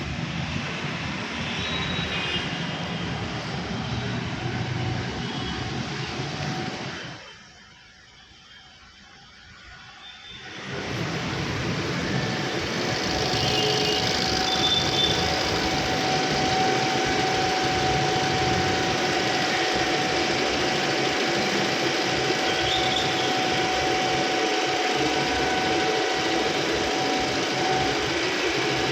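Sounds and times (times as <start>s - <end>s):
steady thin whine: 0.0s - 28.9s
car engine idling: 10.7s - 28.9s.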